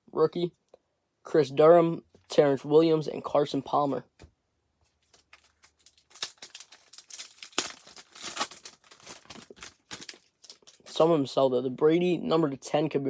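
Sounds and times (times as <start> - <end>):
foil wrapper crinkling and tearing: 5.0 - 11.1.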